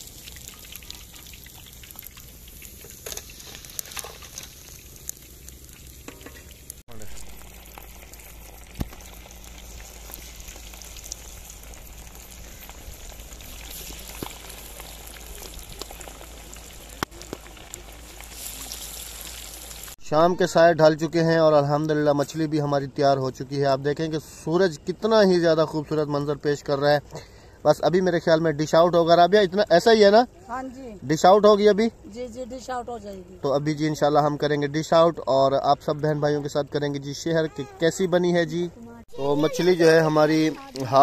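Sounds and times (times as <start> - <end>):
fish deep-frying in hot oil: 0.0 - 20.5, 39.2 - 41.0.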